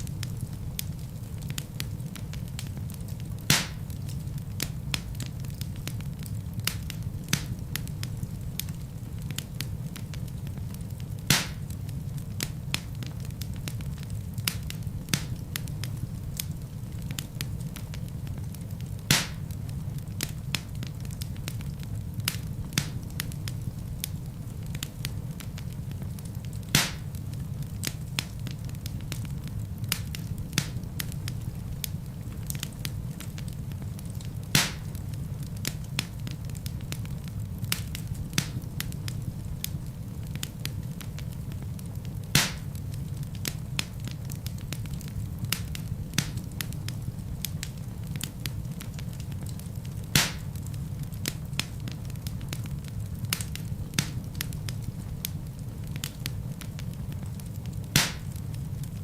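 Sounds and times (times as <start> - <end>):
fireplace fire crackling: 0.0 - 59.0
loud wood pops: 3.5 - 3.8, 11.3 - 11.6, 19.1 - 19.4, 26.8 - 27.0, 34.6 - 34.9, 42.4 - 42.7, 50.2 - 50.5, 58.0 - 58.4.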